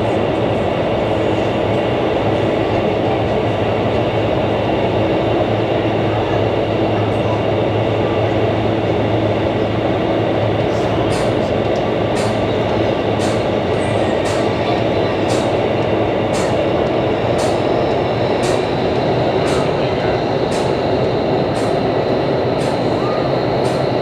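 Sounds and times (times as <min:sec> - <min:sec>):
loud rush of air from fans: 0:10.0 - 0:24.0.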